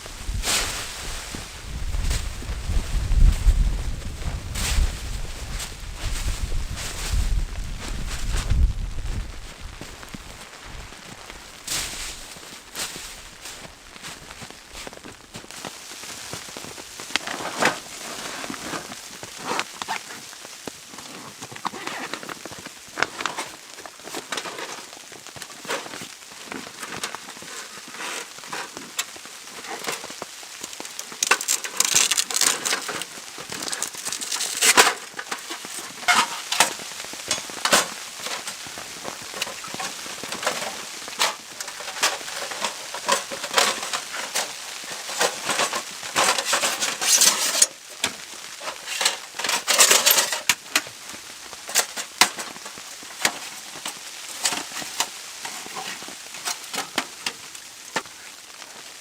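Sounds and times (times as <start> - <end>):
camping gear clicks and taps: 12.3 - 58.9.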